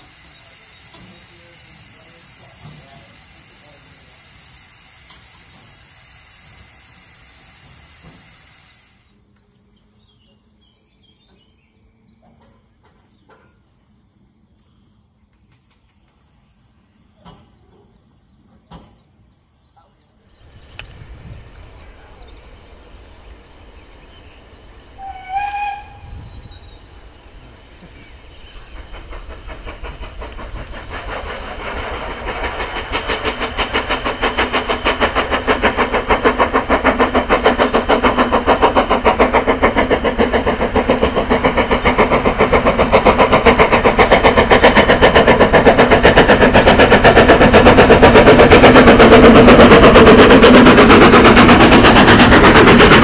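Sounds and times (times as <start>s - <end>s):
steam locomotive exhaust beats: 0.0s - 9.3s, 20.4s - 53.0s
steam locomotive whistle: 25.0s - 26.6s.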